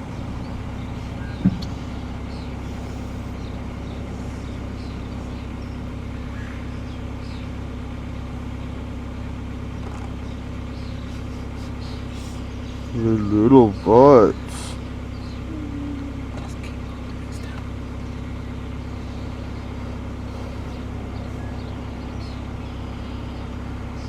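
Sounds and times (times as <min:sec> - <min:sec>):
car engine idling: 0:00.0 - 0:24.0
sharp thump: 0:01.4 - 0:01.7
gosling peeps: 0:09.7 - 0:24.0.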